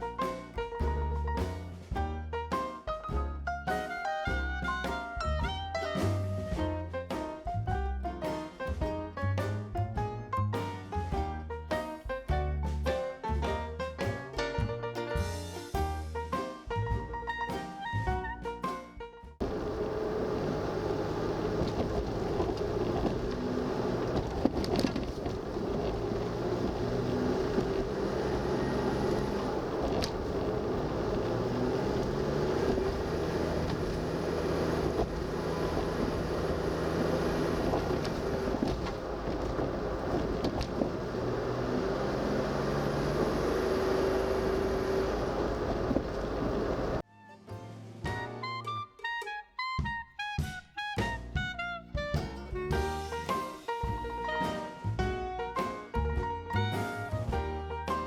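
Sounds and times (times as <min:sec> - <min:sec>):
road noise: 0:19.4 - 0:47.0
small van engine: 0:19.4 - 0:47.0.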